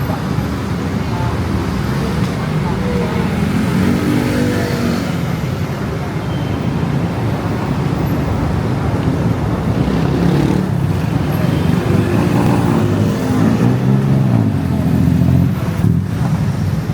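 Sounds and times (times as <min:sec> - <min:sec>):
road traffic: 0:00.0 - 0:16.9.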